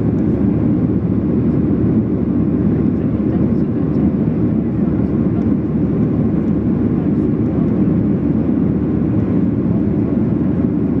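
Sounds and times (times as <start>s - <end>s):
airplane cabin rumble: 0.0s - 11.0s.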